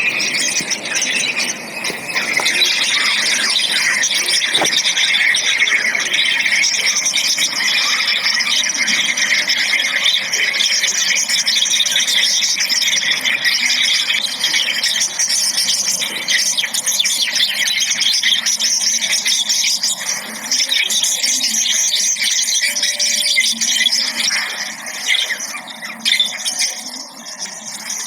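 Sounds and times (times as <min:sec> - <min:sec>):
small birds chirping: 0:00.0 - 0:18.6.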